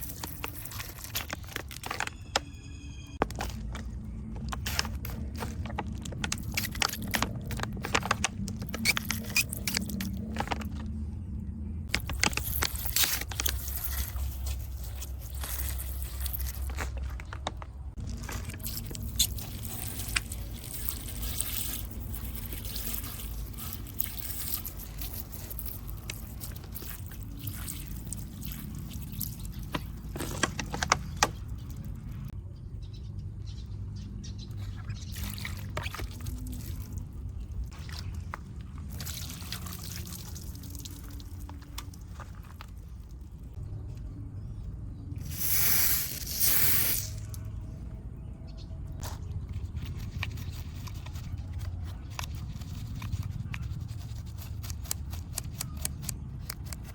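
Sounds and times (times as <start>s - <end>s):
water pouring and splashing: 18.0s - 30.5s, 35.1s - 43.2s.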